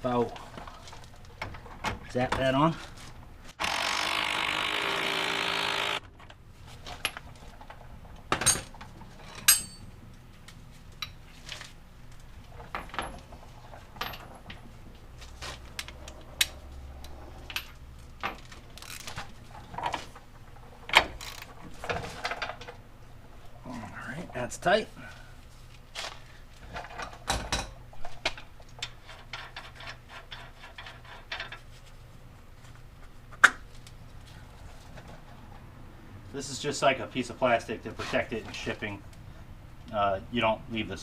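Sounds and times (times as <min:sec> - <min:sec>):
power tool spinning a nut: 0:03.6 - 0:06.1.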